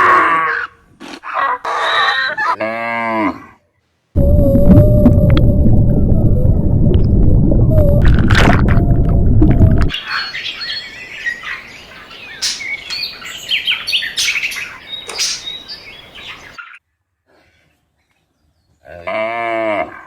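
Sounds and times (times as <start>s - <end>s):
loud low rumble: 4.2s - 9.9s
small birds chirping: 9.9s - 16.8s.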